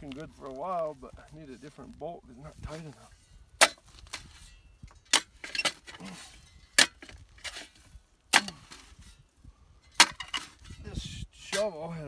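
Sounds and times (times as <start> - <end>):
shovel striking hard ground: 2.5 - 11.9.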